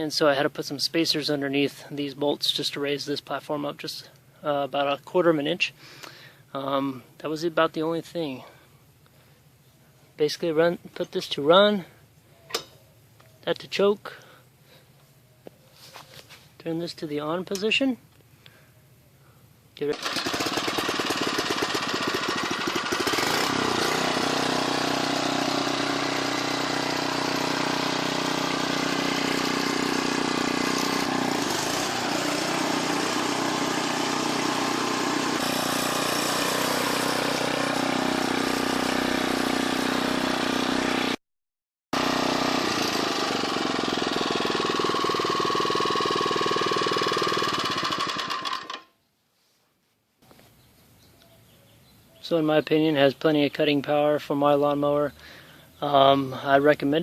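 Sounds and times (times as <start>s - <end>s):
lawn mower engine running: 19.8s - 41.2s, 42.0s - 48.9s.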